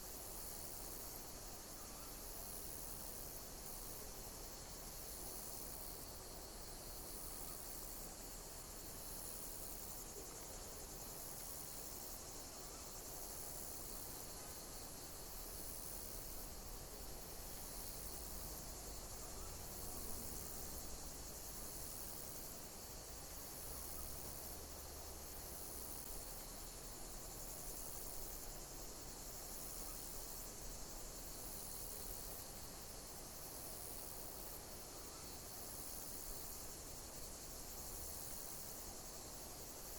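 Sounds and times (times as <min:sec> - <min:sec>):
insects chirping: 0:00.0 - 0:39.9
steady high hiss: 0:00.0 - 0:39.9.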